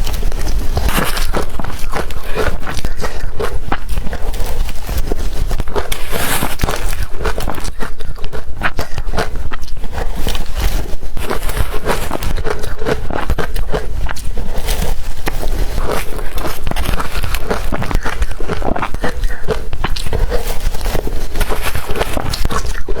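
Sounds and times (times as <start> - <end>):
ice crunching while chewed: 0.0 - 23.0.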